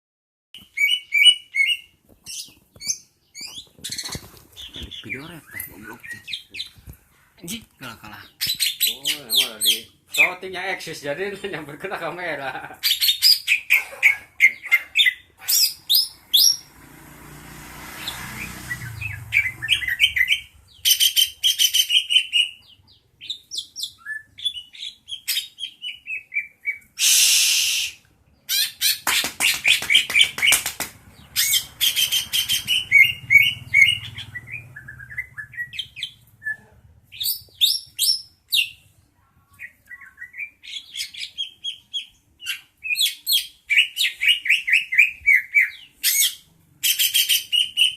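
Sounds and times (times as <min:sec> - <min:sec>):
songbird singing: 0:00.6 - 0:10.6, 0:12.8 - 0:27.0, 0:28.3 - 0:47.9
harsh noisy burst: 0:27.0 - 0:28.0.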